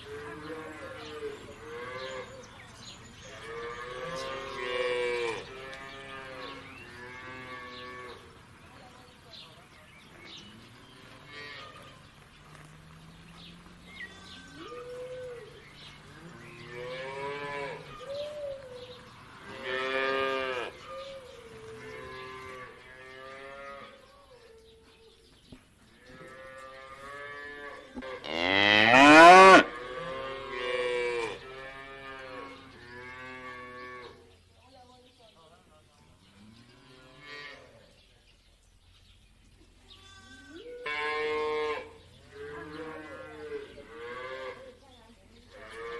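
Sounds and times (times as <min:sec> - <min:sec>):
cattle mooing: 0:26.9 - 0:34.1.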